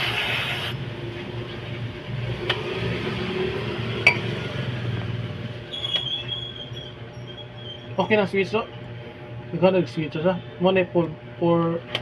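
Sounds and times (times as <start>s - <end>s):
low background hum: 5.3s - 12.0s.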